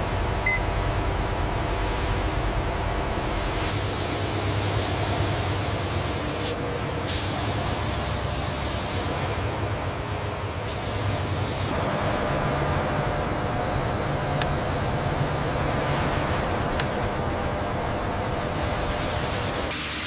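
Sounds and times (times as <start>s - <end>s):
low machine hum: 0.0s - 19.7s
spray gun hissing: 3.4s - 9.1s, 10.7s - 11.7s.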